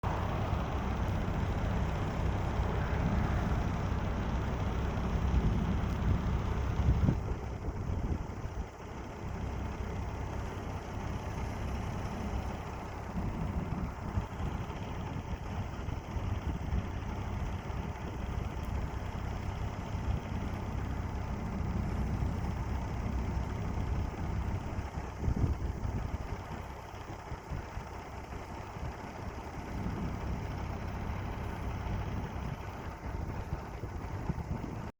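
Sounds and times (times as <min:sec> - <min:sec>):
low rumble: 0:00.0 - 0:34.9.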